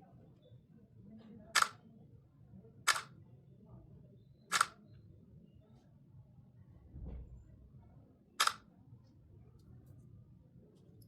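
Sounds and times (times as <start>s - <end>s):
phone camera shutter clicks: 1.6s - 1.8s, 2.9s - 3.1s, 4.5s - 4.8s, 8.4s - 8.6s.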